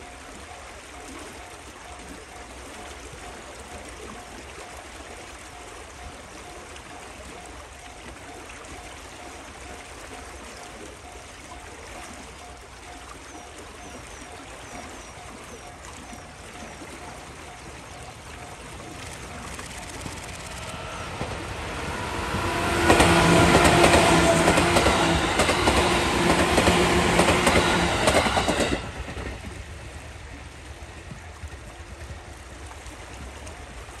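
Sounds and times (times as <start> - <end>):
wheels clattering over rail joints: 17.5 - 29.9
train motor hum: 17.5 - 32.0.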